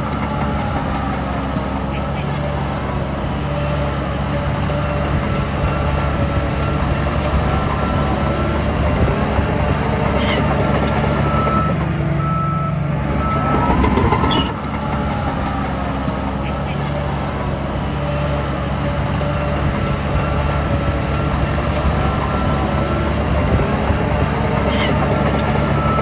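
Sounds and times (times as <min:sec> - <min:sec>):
heavy diesel machinery running: 0:00.0 - 0:26.0
reversing alarm beeping: 0:04.8 - 0:08.8, 0:10.2 - 0:15.5, 0:25.6 - 0:26.0
brief whine: 0:13.0 - 0:14.6.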